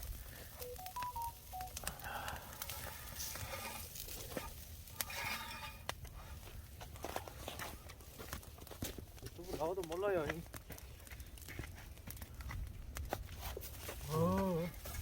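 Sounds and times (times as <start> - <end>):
wood fire crackling: 0.0 - 15.0
short electronic beeps: 0.6 - 1.8.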